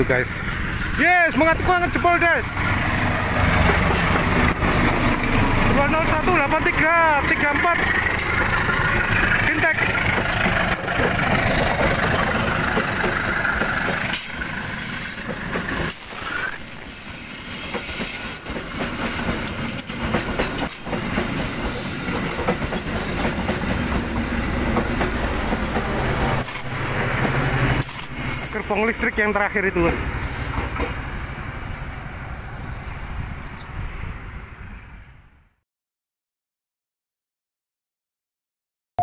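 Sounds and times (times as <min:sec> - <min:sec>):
wheel-on-rail rumble: 0:00.3 - 0:31.5
wheels clacking over rail joints: 0:00.3 - 0:31.5
high wheel squeal: 0:12.6 - 0:19.8, 0:20.6 - 0:27.2, 0:27.8 - 0:35.3.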